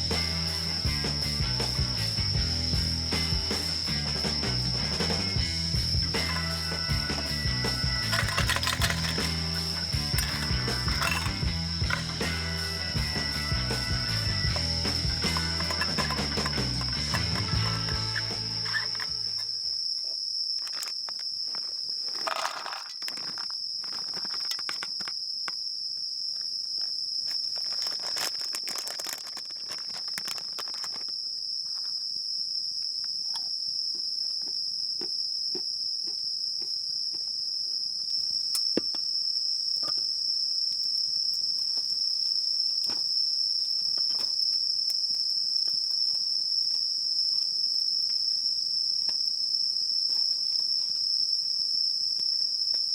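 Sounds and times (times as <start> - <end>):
high-pitched insect chorus: 0.0 - 52.9
small clicks and crackles: 20.6 - 25.2, 26.8 - 31.9.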